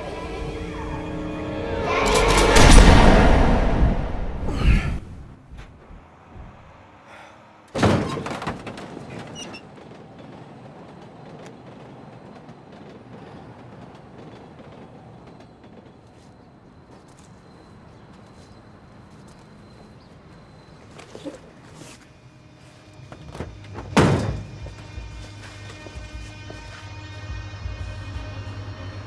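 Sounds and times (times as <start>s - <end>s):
heavy thump: 0.0s - 6.7s, 23.2s - 25.3s.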